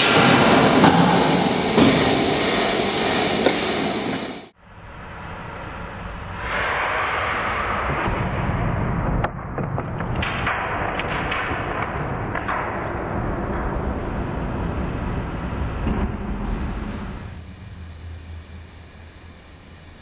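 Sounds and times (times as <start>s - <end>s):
power hammer press running: 0.0s - 4.5s, 16.5s - 20.0s.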